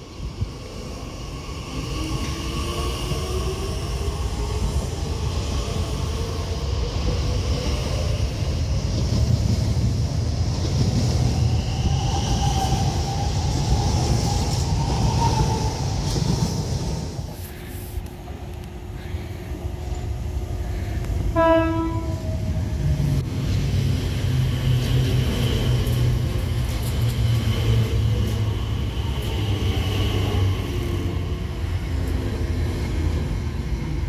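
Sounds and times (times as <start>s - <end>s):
train wheels rumbling on rails: 0.0s - 34.0s
train horn blast: 21.3s - 22.3s.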